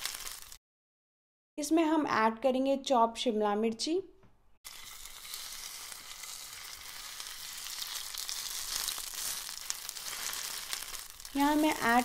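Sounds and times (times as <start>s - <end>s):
vegetables sizzling in oil: 0.0s - 0.6s, 4.7s - 12.0s.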